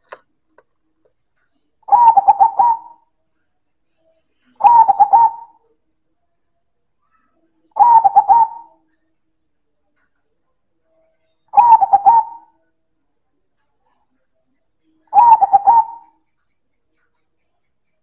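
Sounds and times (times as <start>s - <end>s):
dove cooing: 1.9s - 3.0s, 4.6s - 5.8s, 7.8s - 8.8s, 11.6s - 12.5s, 15.1s - 16.2s.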